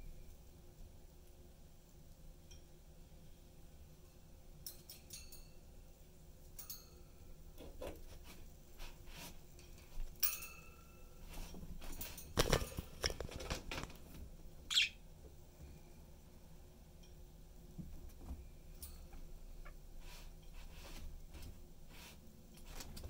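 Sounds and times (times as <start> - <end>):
budgerigars chirping: 14.7 - 15.0.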